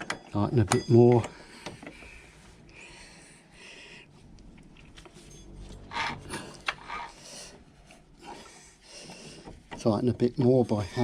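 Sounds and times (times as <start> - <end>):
metallic scraping and rubbing: 4.6 - 8.4.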